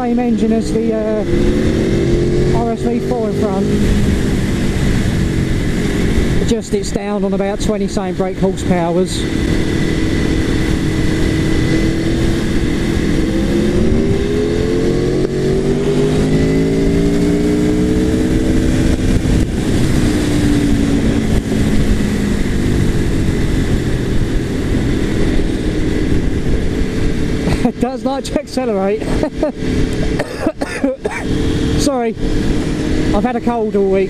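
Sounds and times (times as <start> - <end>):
motorcycle engine pulling hard: 0.0 - 34.0
wind noise while riding: 0.0 - 34.0.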